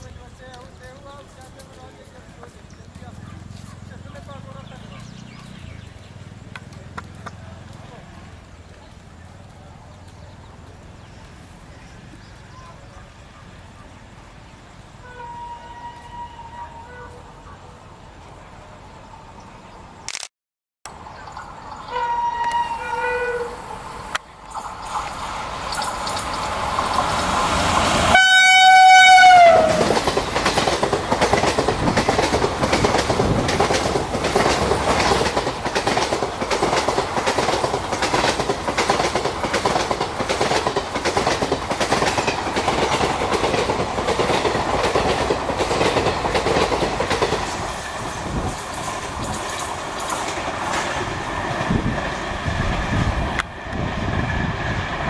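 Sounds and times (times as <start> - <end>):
wheels clacking over rail joints: 0.0 - 13.0, 24.0 - 55.0
locomotive horn blast: 15.0 - 17.4, 21.9 - 24.0, 28.0 - 30.0.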